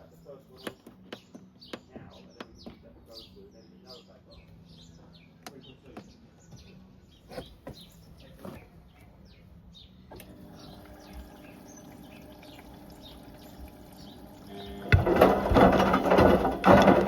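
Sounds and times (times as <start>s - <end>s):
washing machine humming: 10.1s - 17.0s.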